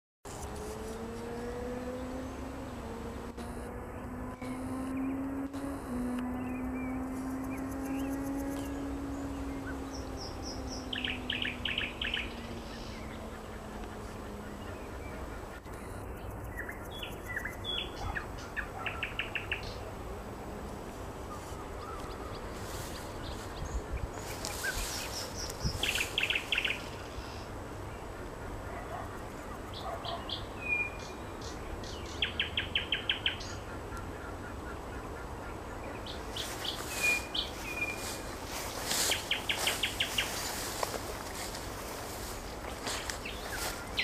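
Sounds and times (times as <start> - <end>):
outdoor background: 0.2 - 44.0
low steady hum: 0.3 - 18.8
nightingale singing: 1.4 - 19.8, 21.4 - 27.4, 29.7 - 33.7, 35.8 - 44.0.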